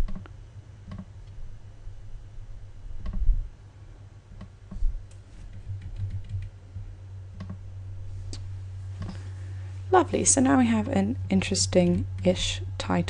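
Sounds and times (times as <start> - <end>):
low steady hum: 0.0 - 13.0
computer clicks: 5.1 - 6.5.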